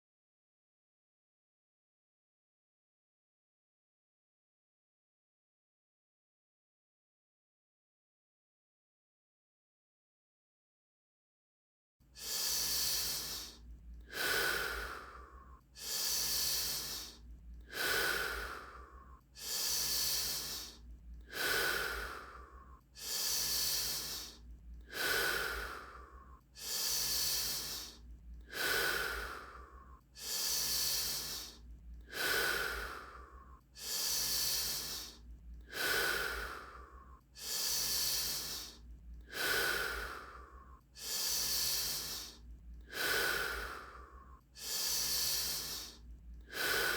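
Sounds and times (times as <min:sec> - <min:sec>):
person breathing forcefully: 0:12.2 - 0:46.9.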